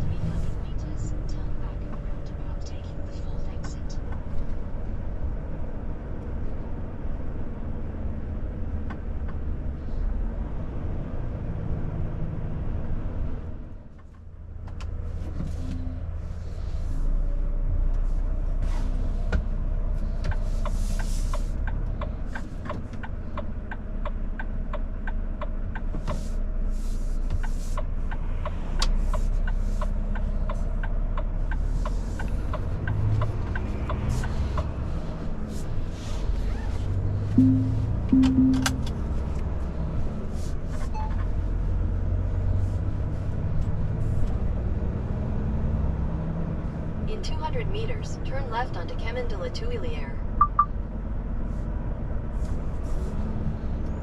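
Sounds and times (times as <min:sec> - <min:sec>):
truck engine rumble: 0:00.0 - 0:54.0
ticking clicks: 0:37.4 - 0:39.0.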